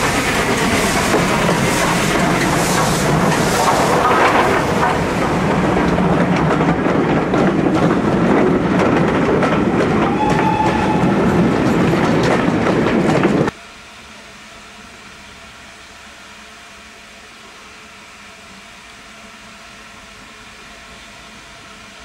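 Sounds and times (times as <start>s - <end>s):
wheels clattering over rail joints: 0.0s - 13.5s.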